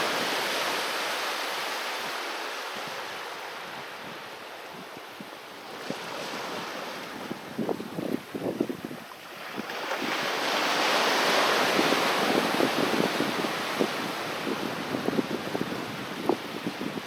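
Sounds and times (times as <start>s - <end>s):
water splashing at shoreline: 5.6s - 14.0s.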